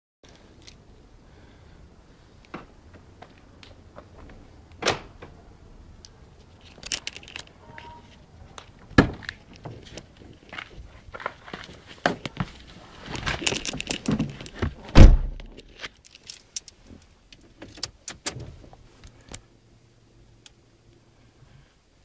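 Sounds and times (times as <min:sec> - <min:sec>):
faint steady hum: 0:00.3 - 0:22.0
keys jangling: 0:06.7 - 0:07.5, 0:13.4 - 0:14.2
car door shutting: 0:14.1 - 0:15.5.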